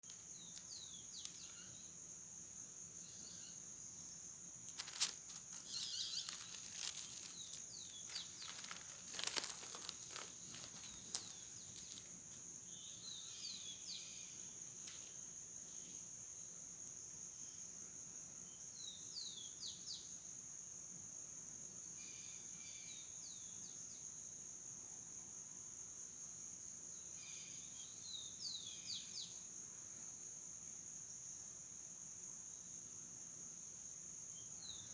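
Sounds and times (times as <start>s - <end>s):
crackling and rustling: 0.0s - 1.7s, 4.6s - 12.5s
insects droning: 0.0s - 34.9s
bird chirps: 0.4s - 1.9s, 4.8s - 12.0s.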